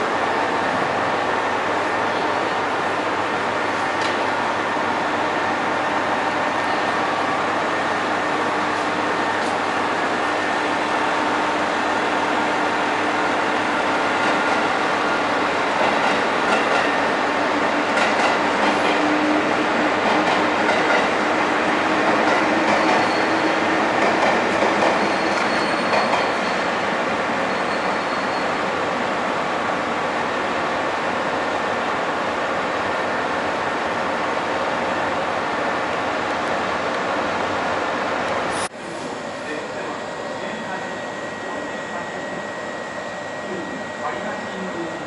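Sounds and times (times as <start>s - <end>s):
train hum: 0.0s - 45.0s
train wheels clacking on rail: 15.7s - 17.1s, 17.8s - 26.7s
high squeal: 22.8s - 23.5s, 25.0s - 26.7s, 27.4s - 28.6s.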